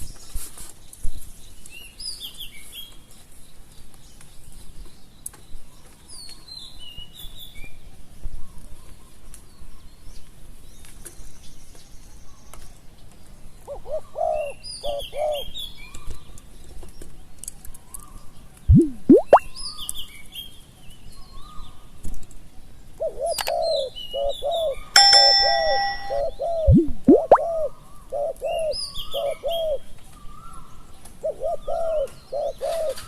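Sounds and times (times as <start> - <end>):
small birds chirping: 14.4 - 27.6.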